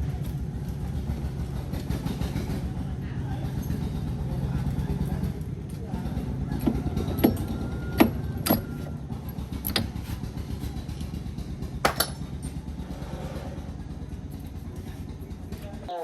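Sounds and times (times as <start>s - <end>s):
low machine rumble: 0.0s - 16.0s
sharp metallic clinks: 11.8s - 12.6s.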